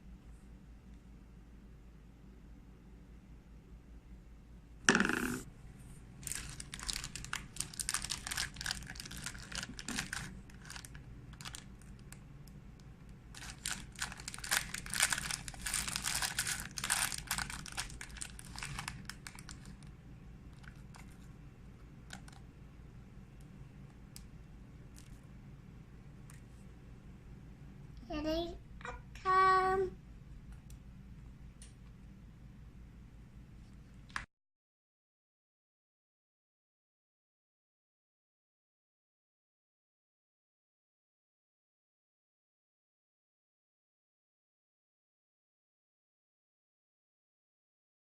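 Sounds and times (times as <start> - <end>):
packaging crinkling and crackling: 6.2 - 12.2, 13.3 - 21.3, 22.0 - 22.4, 24.9 - 25.2.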